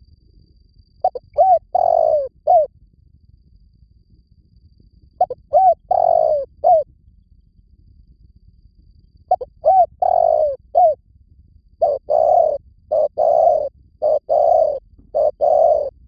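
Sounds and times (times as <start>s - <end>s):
dove cooing: 1.0s - 2.7s, 5.2s - 6.8s, 9.3s - 11.0s, 11.8s - 16.0s.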